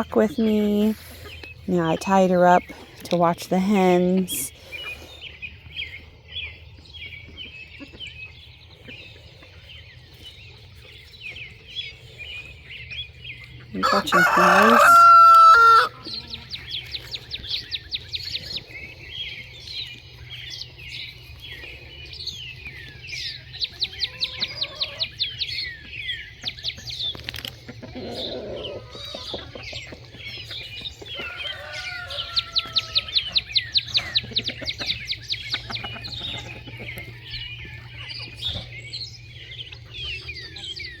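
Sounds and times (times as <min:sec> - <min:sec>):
small birds chirping and trilling: 0:00.0 - 0:41.0
rooster crowing: 0:13.8 - 0:16.0, 0:31.2 - 0:33.1.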